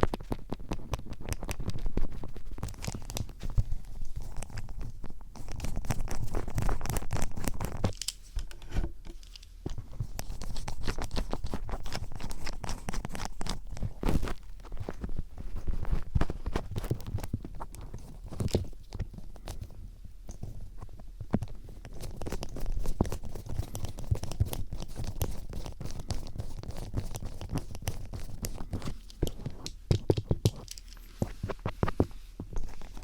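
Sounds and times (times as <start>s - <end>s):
screwdriver scratching microphone: 9.7s - 19.7s, 20.4s - 29.7s.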